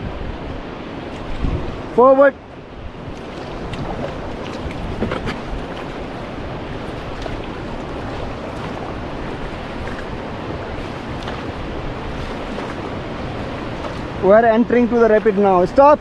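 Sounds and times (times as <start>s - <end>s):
river water rushing: 0.0s - 16.0s
faint paddle splashes: 3.0s - 14.2s.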